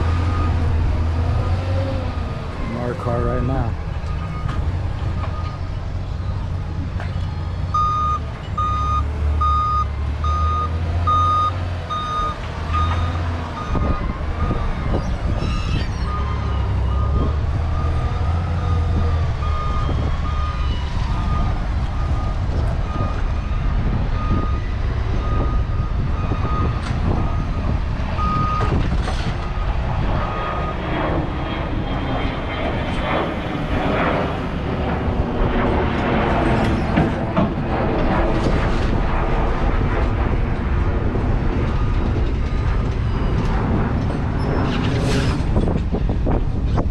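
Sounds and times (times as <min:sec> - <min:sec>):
engine rumbling: 0:00.0 - 0:46.9
reversing alarm beeping: 0:02.7 - 0:05.8, 0:07.7 - 0:28.8.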